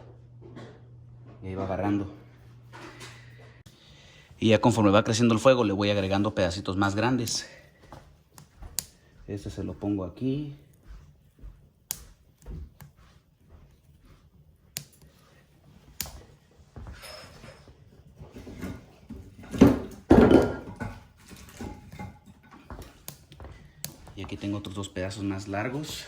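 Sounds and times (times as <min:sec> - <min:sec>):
firewood knocking on wood and metal: 0:18.3 - 0:24.3.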